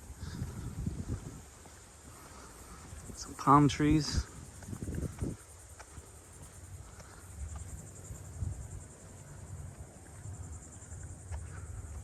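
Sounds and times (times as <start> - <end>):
insects trilling: 0.0 - 12.0
footsteps walking: 0.4 - 12.0.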